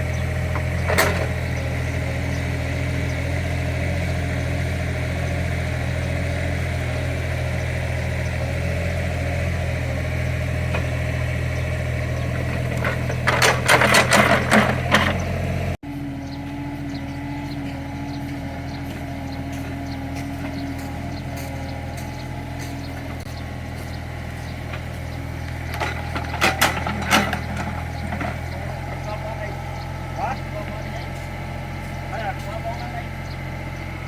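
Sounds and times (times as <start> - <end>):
excavator diesel engine running: 0.0 - 34.0
scraping and clattering while digging: 12.2 - 15.4, 24.6 - 28.9.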